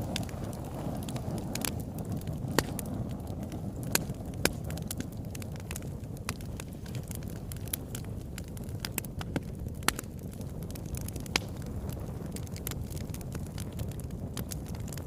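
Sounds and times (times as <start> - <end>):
fire crackling and popping: 0.0 - 15.0
fire flames rumbling: 0.0 - 15.0.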